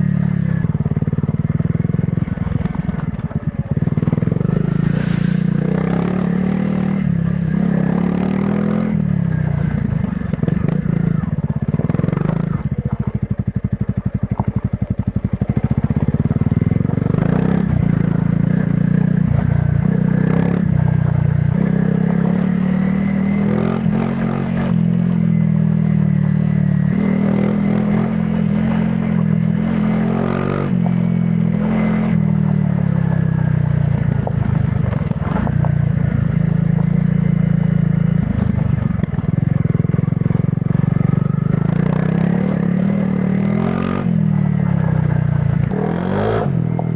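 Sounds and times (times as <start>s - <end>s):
motorcycle engine running: 0.0s - 46.9s
knocks and rattles over rough ground: 0.7s - 6.2s, 32.2s - 37.4s, 38.1s - 45.8s.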